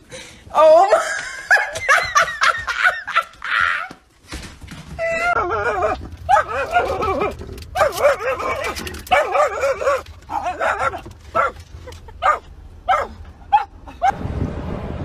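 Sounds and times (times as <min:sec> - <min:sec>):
dog yipping: 0:05.2 - 0:11.6, 0:12.2 - 0:14.1.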